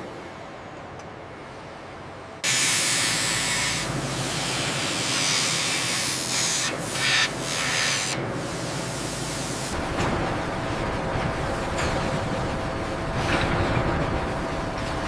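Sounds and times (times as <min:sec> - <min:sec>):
loud steady hiss: 0:02.4 - 0:09.8.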